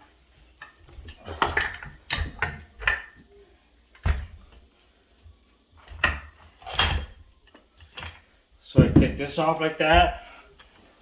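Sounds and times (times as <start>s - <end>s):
metal parts knocking and clanking: 0.6s - 3.2s.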